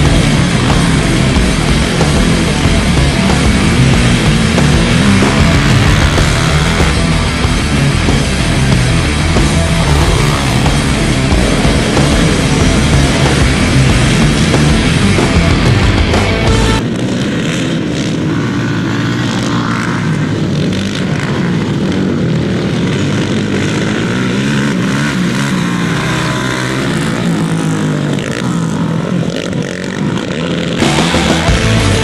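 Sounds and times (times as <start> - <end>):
off-road racing engines revving: 0.0 - 32.0.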